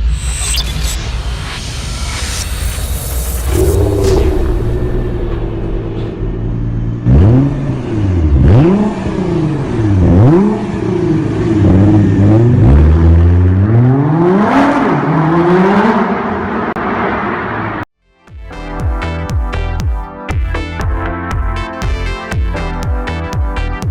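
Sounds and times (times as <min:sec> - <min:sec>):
car engine idling and revving: 0:00.0 - 0:17.9.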